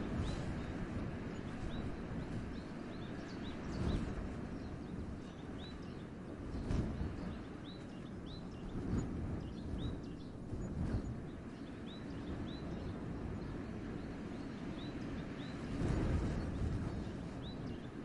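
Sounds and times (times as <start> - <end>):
wind gusting through trees: 0.0 - 18.0.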